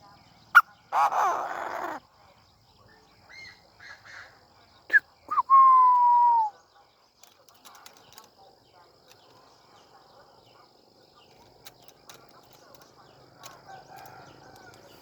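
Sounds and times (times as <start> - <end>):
francolin calling: 0.6 - 2.0, 3.3 - 6.6.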